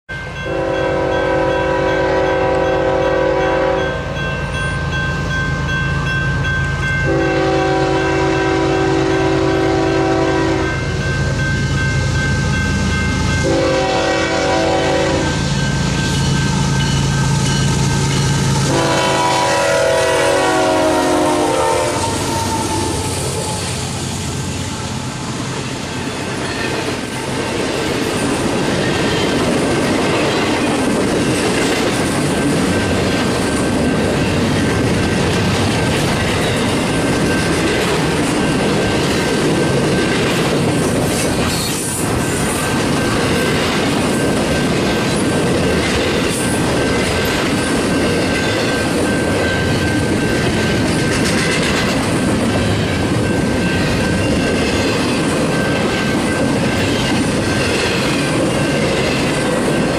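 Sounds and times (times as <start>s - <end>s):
locomotive engines rumbling: 0.3s - 59.9s
train horn blasts: 0.4s - 4.2s, 7.0s - 10.9s, 13.4s - 15.5s, 17.4s - 24.0s.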